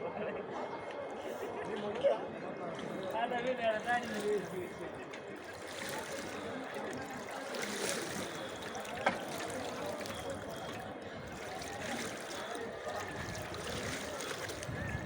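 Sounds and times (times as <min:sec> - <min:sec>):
heavy rain running and splashing: 0:05.4 - 0:15.0.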